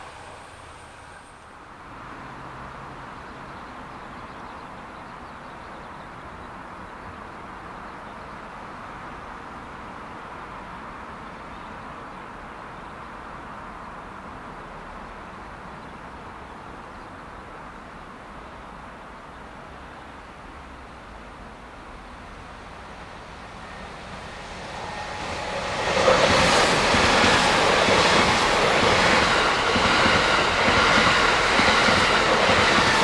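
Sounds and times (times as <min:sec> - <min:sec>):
passenger train rushing: 0:00.0 - 0:03.1, 0:19.8 - 0:33.0.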